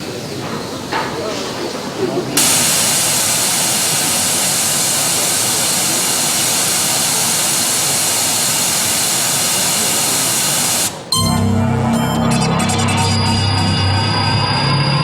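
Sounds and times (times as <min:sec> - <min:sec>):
steady hiss: 0:00.0 - 0:11.2.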